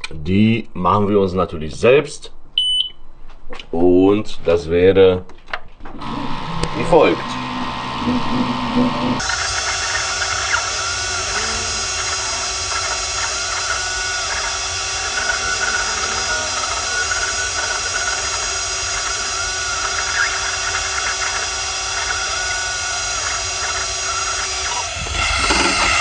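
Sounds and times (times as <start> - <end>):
small motor machine whining: 5.9 - 26.0.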